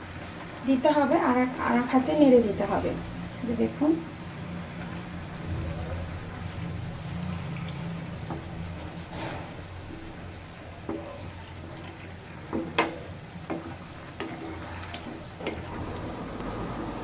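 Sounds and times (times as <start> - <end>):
spatula knocking on pan: 8.2 - 8.6, 9.9 - 15.7.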